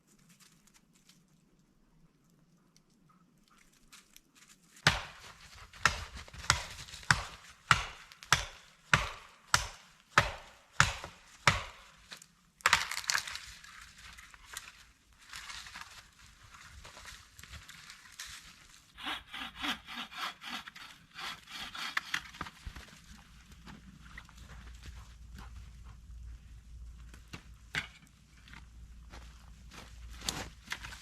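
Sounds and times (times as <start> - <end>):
wood chopping strikes: 4.8 - 13.4, 19.0 - 22.9
saw cutting wood: 19.0 - 22.9.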